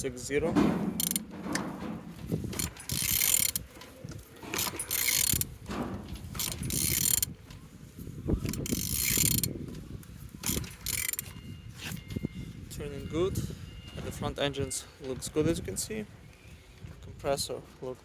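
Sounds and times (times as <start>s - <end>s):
ratchet clicking: 0.9s - 1.7s, 2.5s - 3.7s, 4.5s - 7.3s, 8.5s - 9.5s, 10.4s - 11.2s.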